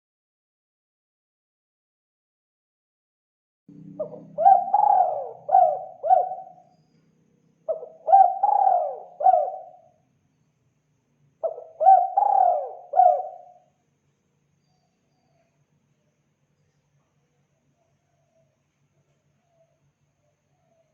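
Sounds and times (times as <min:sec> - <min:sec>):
dove cooing: 0:03.8 - 0:06.7, 0:07.7 - 0:09.9, 0:11.4 - 0:13.6.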